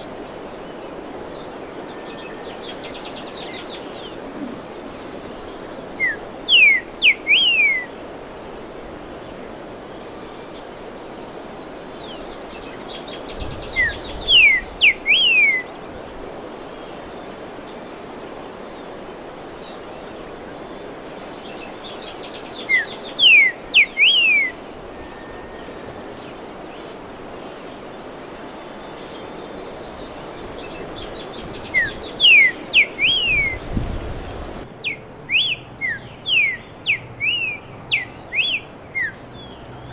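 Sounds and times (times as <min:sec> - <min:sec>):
bird whistling song: 0:06.0 - 0:08.0, 0:11.4 - 0:15.8, 0:21.4 - 0:27.6, 0:28.9 - 0:39.9.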